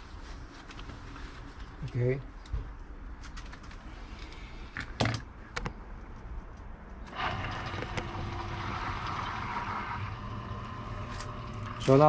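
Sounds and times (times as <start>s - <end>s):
liquid flowing: 7.1s - 12.0s
pump humming: 7.1s - 12.0s.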